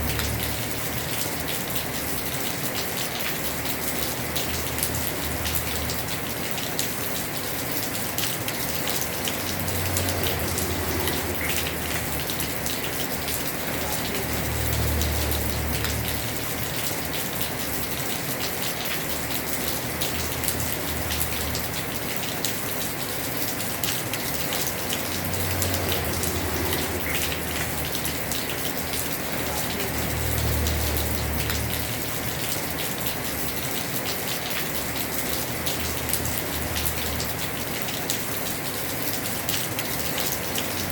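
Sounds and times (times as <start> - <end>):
heavy rain on a roof: 0.0 - 40.9.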